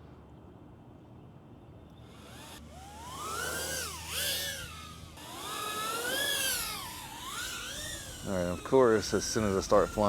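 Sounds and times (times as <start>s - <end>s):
drone motors whining: 2.0s - 10.0s.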